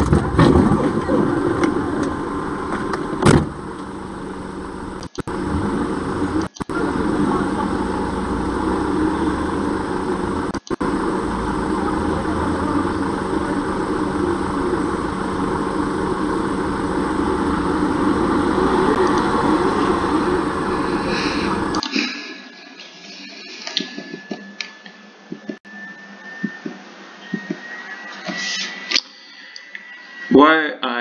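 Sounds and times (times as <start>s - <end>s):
car engine idling: 0.0s - 21.9s
street traffic noise: 0.0s - 22.0s.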